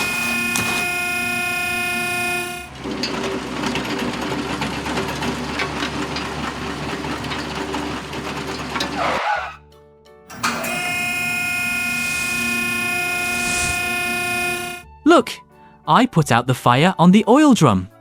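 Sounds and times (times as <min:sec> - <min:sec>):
droning horn-like tone: 0:00.0 - 0:02.8, 0:10.3 - 0:14.8
mechanical vehicle with clatter: 0:00.0 - 0:09.6, 0:10.3 - 0:14.8.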